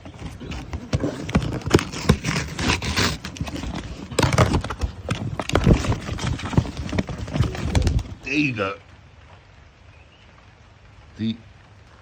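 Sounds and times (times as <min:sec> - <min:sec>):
irregular knocks and thumps: 0:00.0 - 0:08.3
rustling noise: 0:00.0 - 0:08.5.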